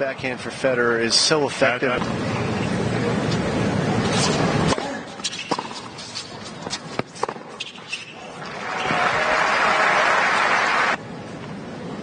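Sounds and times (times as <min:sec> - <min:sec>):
tennis ball struck and bouncing: 0:04.7 - 0:05.9
crowd applause and cheering: 0:08.4 - 0:11.0.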